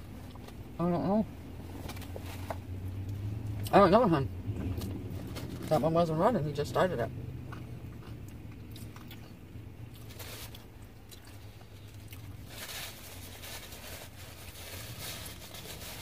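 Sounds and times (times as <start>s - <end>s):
steady low hum: 0.0s - 16.0s
person chewing: 7.4s - 12.4s
rustle: 11.4s - 16.0s.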